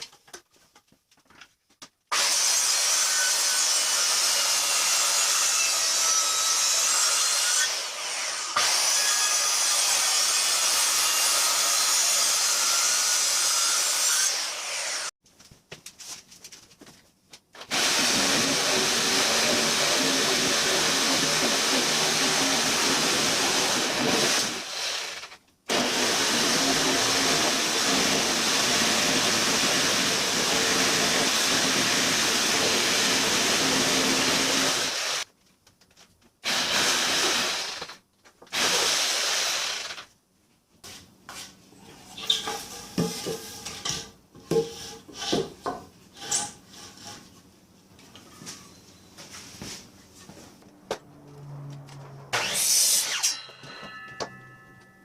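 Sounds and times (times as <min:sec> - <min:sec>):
wood and tools clattering: 0:41.9 - 0:50.7.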